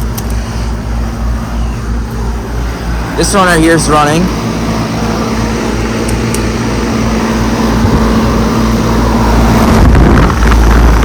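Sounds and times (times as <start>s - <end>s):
air conditioner unit humming: 0.0s - 11.0s
condenser fan whooshing: 0.0s - 11.0s
wind rumble on microphone: 7.2s - 11.0s.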